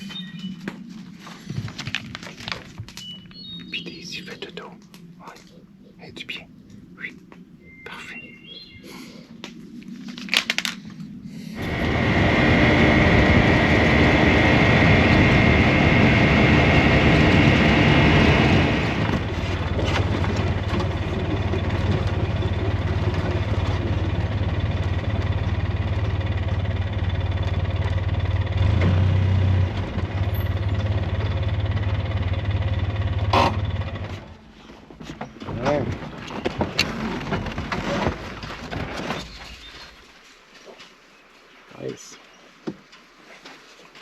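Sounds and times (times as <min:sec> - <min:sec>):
vehicle engine running: 0:11.6 - 0:35.1.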